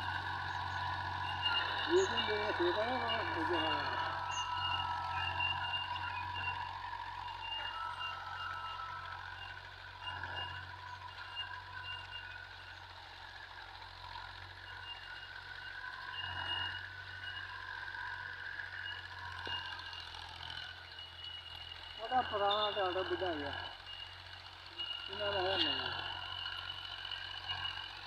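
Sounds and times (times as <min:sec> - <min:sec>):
high whining tones: 0:00.0 - 0:28.0
tractor engine humming: 0:00.0 - 0:28.0.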